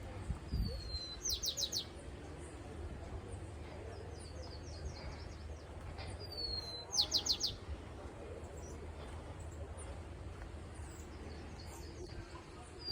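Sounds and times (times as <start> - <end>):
bird whistling and calling: 0.6 - 1.9.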